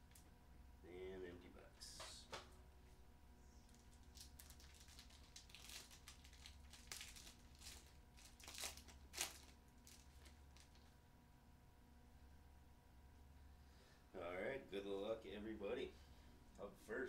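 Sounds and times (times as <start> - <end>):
wrapper crinkling and tearing: 3.7 - 10.9.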